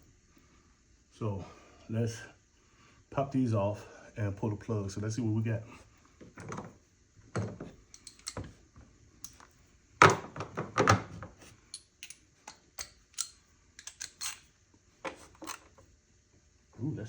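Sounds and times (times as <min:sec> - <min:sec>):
connectors clicking and knocking: 0:07.4 - 0:08.6, 0:11.7 - 0:14.4.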